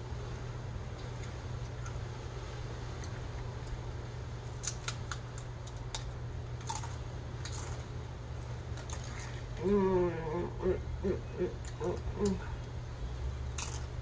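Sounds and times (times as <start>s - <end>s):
steady low hum: 0.0s - 14.0s
chip crunching while chewed: 4.4s - 9.7s, 13.5s - 14.0s.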